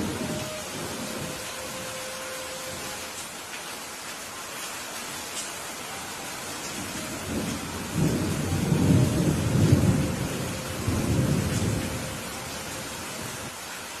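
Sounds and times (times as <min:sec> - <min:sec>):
thunder rumbling: 0:00.0 - 0:03.0, 0:06.7 - 0:13.6
steady rain: 0:00.0 - 0:14.0.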